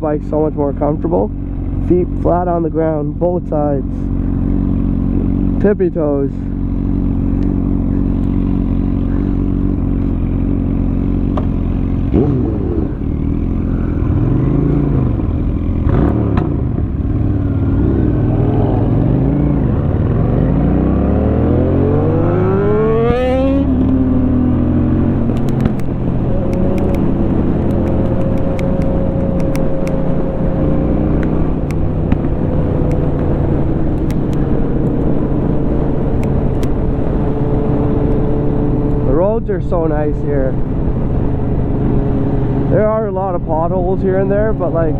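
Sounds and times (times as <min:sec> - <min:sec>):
motorcycle engine idling and accelerating: 0:00.0 - 0:44.9.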